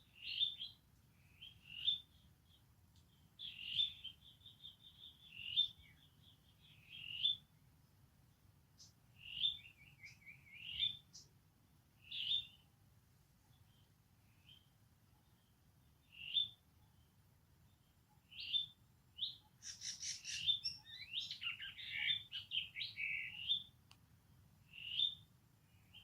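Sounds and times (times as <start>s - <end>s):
animal chirping and trilling: 19.6s - 23.6s.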